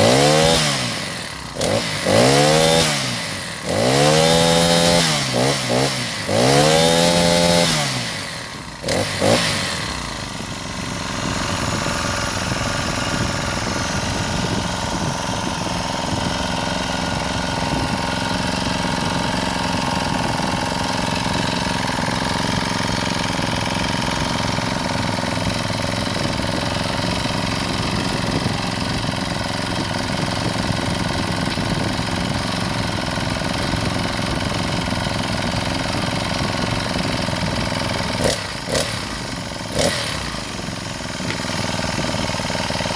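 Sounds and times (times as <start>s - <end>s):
small engine revving: 0.0s - 42.9s
engine sharp knocks: 12.3s - 42.9s.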